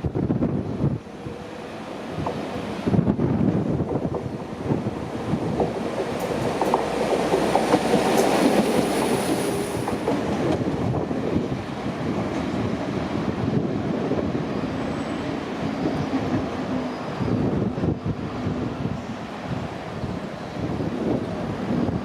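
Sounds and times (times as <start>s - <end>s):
train wheels clicking over rail joints: 3.6s - 11.4s.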